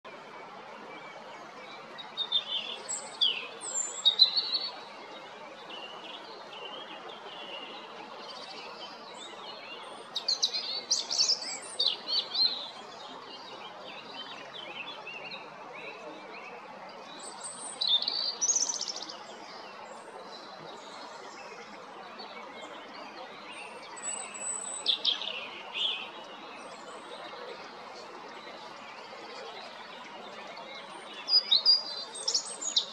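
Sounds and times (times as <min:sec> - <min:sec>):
robin singing: 0:02.0 - 0:04.9, 0:05.7 - 0:16.6, 0:17.2 - 0:19.8, 0:23.4 - 0:26.9, 0:30.4 - 0:32.9.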